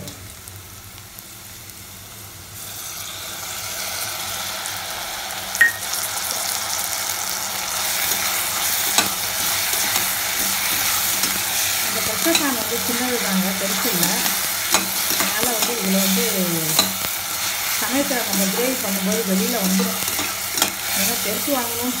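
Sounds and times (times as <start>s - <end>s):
food sizzling in hot oil: 0.0s - 22.0s
spatula scraping metal pan: 8.0s - 21.2s.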